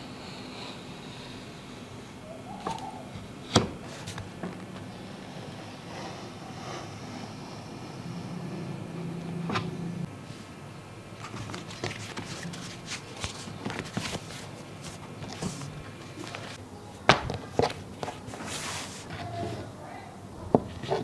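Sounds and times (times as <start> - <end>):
light taps and handling noises: 2.6 - 4.9, 11.2 - 19.8.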